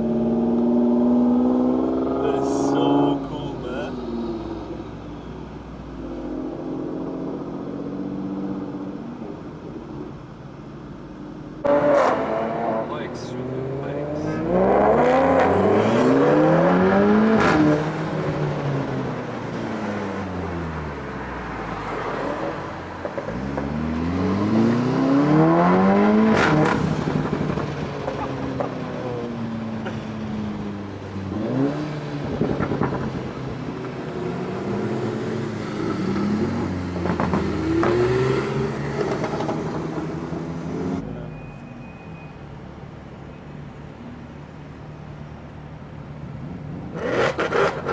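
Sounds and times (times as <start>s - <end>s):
motorcycles accelerating past: 21.8s - 41.0s.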